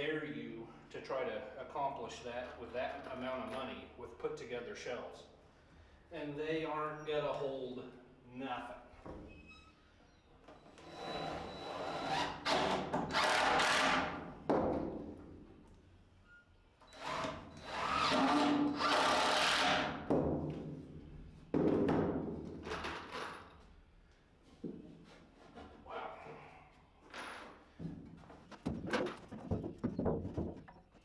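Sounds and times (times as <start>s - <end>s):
power drill drilling into wood: 10.8s - 14.1s, 17.0s - 19.9s.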